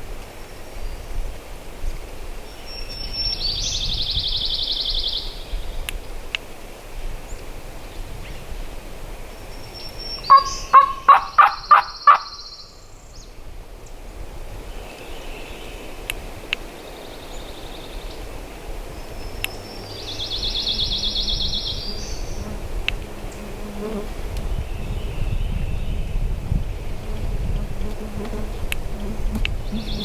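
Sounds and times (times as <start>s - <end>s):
wind-like hiss: 0.0s - 30.0s
turkey yelps: 10.3s - 12.3s.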